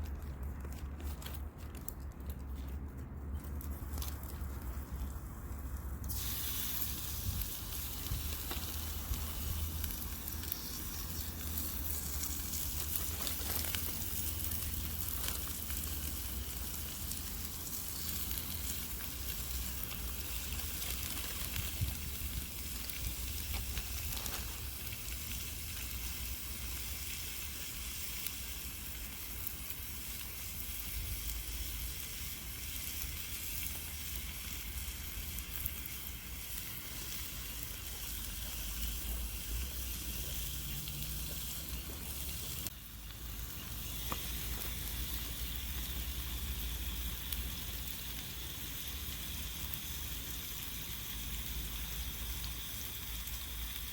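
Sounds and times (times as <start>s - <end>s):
food sizzling in a pan: 6.0s - 53.9s.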